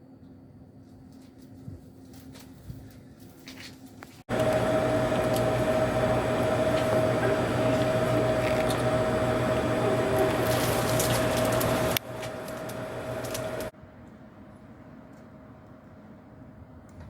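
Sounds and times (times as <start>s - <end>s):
train rumbling with hum: 4.3s - 13.7s.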